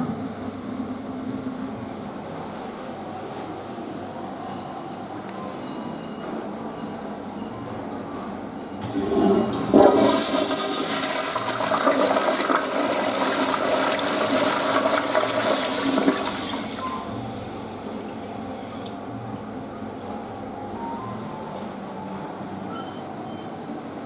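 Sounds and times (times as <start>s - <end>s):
toilet flushing: 8.8s - 19.6s.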